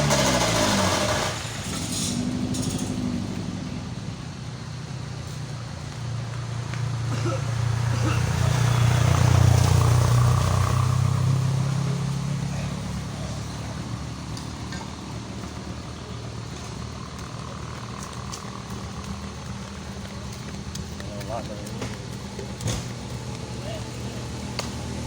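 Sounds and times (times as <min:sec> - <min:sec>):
vehicle engine driving away: 0:00.0 - 0:25.0.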